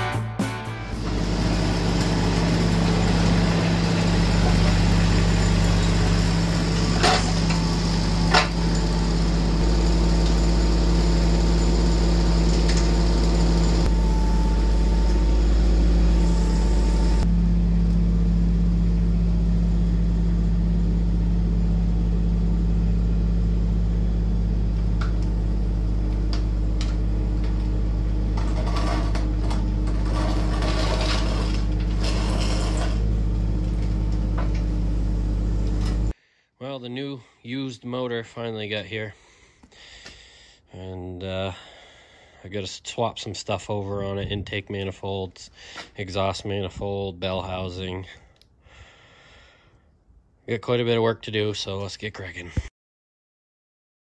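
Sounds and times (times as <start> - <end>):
engine idling: 0.9 - 36.1.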